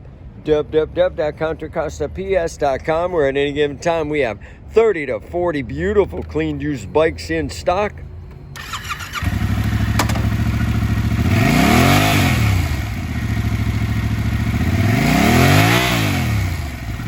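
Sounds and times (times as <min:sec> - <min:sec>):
motorcycle engine idling and revving: 0:08.5 - 0:17.0.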